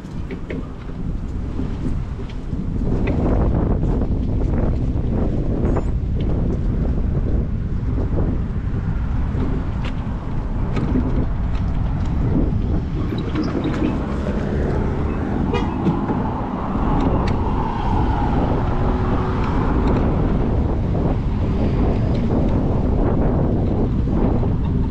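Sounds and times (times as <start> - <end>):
wind rumbling on microphone: 0.0 - 24.9
vehicle passing by: 11.3 - 22.9.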